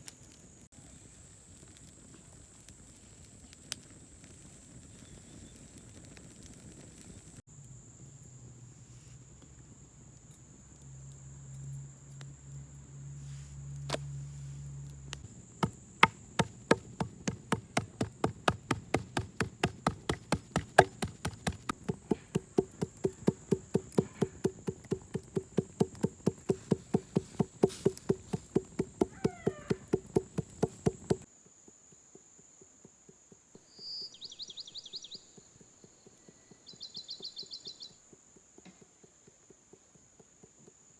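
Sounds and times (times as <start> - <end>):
knife chopping on wooden board: 15.6 - 31.2.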